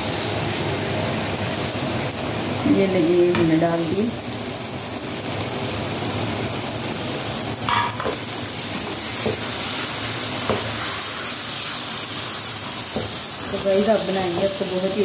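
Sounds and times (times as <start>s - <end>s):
food sizzling in a steel pan: 0.0s - 15.0s.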